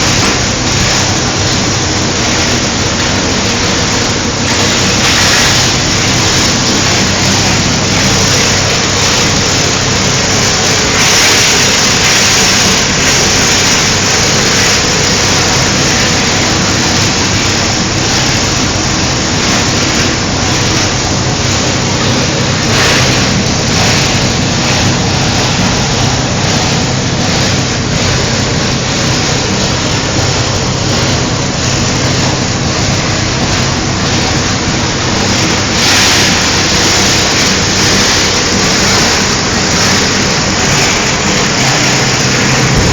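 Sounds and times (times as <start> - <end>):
continuous grinding noise: 0.0 - 42.9
shredder motor hum: 39.2 - 42.9.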